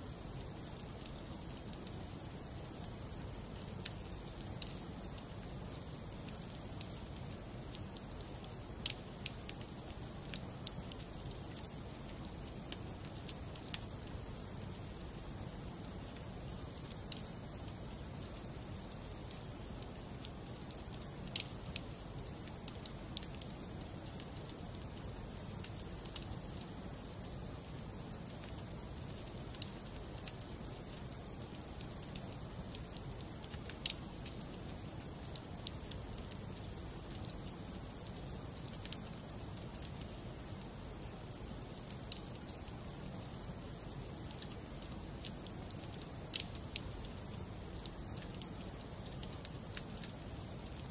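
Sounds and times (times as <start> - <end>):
logs crackling and popping: 0.0 - 50.9.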